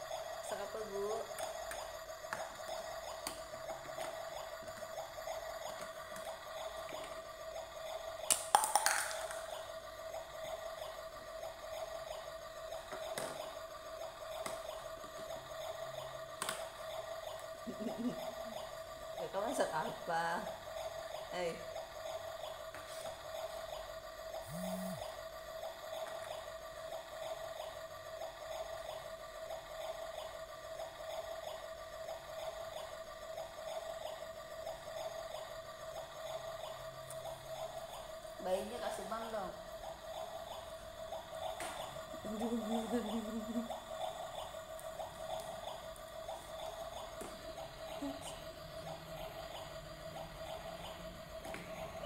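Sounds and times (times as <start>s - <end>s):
low electronic hum: 0.0s - 52.0s
plastic toy cookware knocking: 8.3s - 9.5s.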